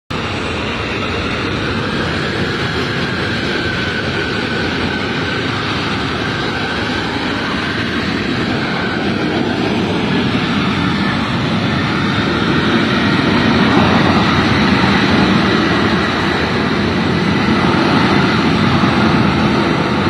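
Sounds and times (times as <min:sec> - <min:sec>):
jet engines roaring with whine: 0:00.1 - 0:20.0.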